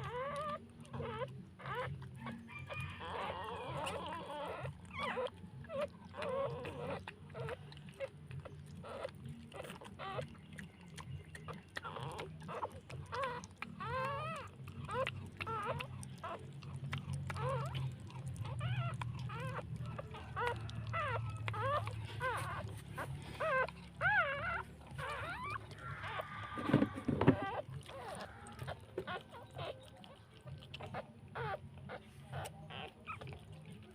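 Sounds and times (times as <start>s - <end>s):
puppies squealing and whimpering: 0.0s - 33.9s
rustle and knock: 26.5s - 27.6s.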